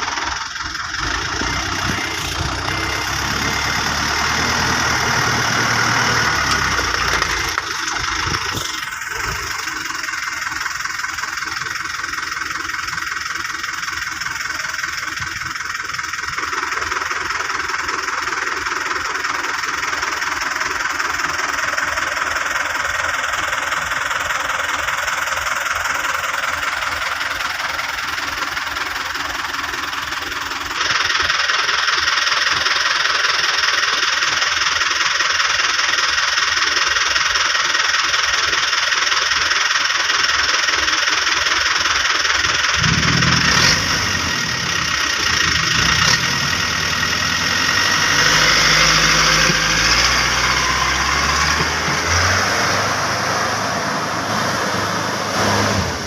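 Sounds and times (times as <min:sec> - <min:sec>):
vehicle engine running: 0:00.0 - 0:56.0
deeper engine note: 0:00.9 - 0:10.7, 0:42.5 - 0:56.0.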